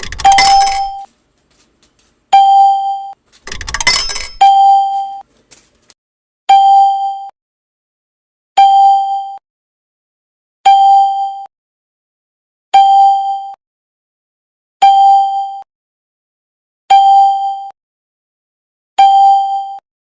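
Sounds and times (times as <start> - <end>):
coin machine electronic chime: 0.0 - 1.1, 3.5 - 5.2.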